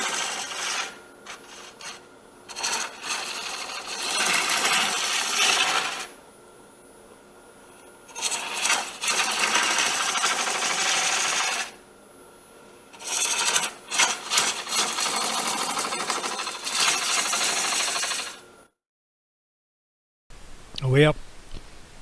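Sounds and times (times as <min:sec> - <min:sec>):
lathe tool scraping wood: 0:00.0 - 0:06.2, 0:08.1 - 0:11.8, 0:12.9 - 0:18.4
faint steady hum: 0:00.4 - 0:10.0, 0:11.7 - 0:14.6, 0:20.3 - 0:22.0.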